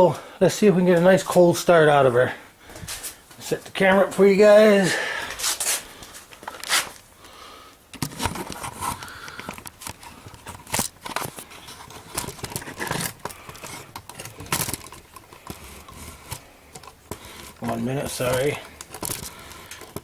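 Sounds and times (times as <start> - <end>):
device handling clicks and knocks: 7.9 - 17.3, 18.3 - 20.0.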